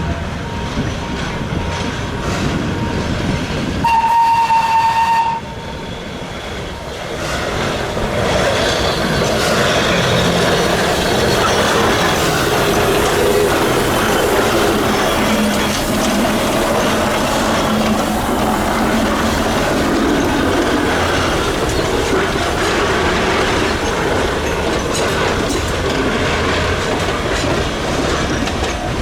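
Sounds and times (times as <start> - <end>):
steam locomotive whistle: 3.8 - 5.9.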